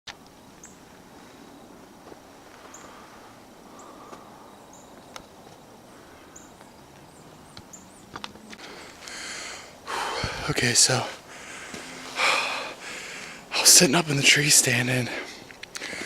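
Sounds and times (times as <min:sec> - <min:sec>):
bird chirping: 0:00.4 - 0:01.7, 0:03.7 - 0:09.3.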